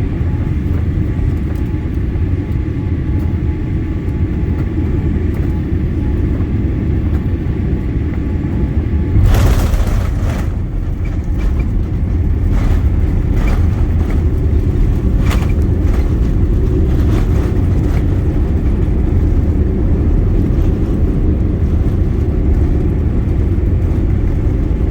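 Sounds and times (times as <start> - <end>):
airliner cabin rumble: 0.0 - 24.9
runway roll thumps: 9.0 - 19.6
wheels touching down jolt: 9.1 - 18.4.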